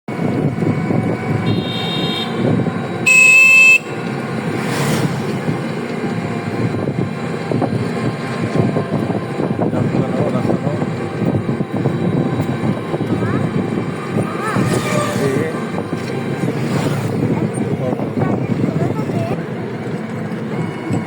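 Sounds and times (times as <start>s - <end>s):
road traffic rumble: 0.1s - 21.0s
vehicle horn honking: 1.4s - 4.2s.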